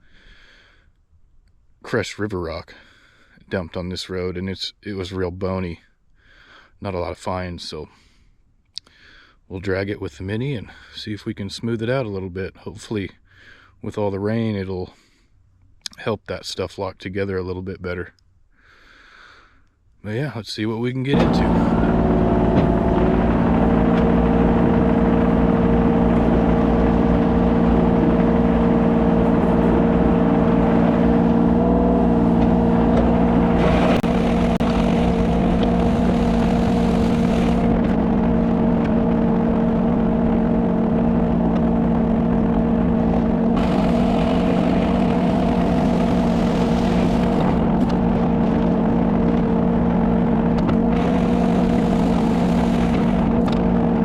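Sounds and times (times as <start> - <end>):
excavator diesel engine running: 21.1 - 54.0.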